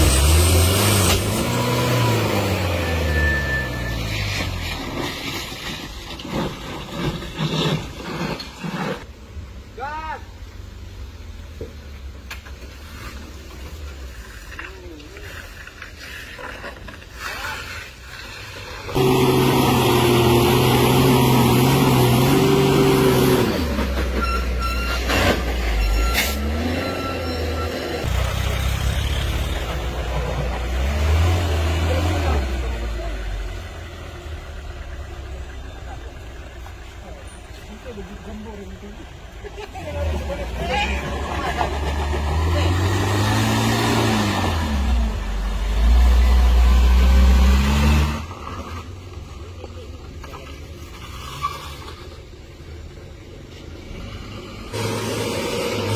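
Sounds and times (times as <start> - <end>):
heavy truck engine drone: 0.0 - 5.4, 18.8 - 51.0, 51.7 - 55.9
truck engine running under load: 19.0 - 37.3.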